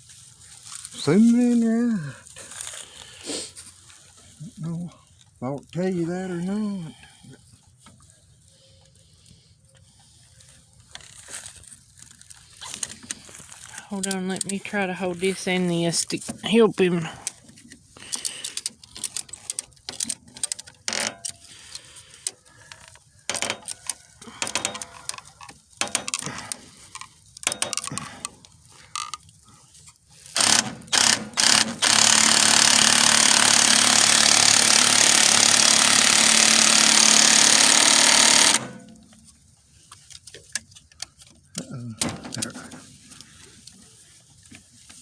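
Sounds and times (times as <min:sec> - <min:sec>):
hand tools clicking and knocking: 0:16.0 - 0:21.5, 0:22.2 - 0:29.2, 0:30.3 - 0:39.0
loud steady mechanical noise: 0:30.4 - 0:39.0.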